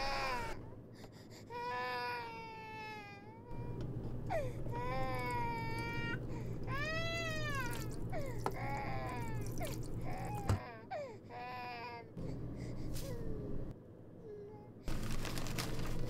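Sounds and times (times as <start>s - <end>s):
infant crying: 0.0s - 0.7s, 1.5s - 3.7s, 4.3s - 12.1s.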